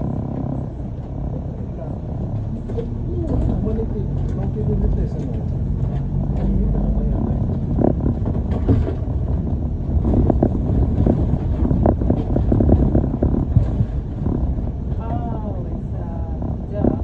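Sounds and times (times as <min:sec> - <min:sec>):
bus engine and road rumble: 0:00.0 - 0:17.0
knocks and rattles: 0:02.2 - 0:15.7.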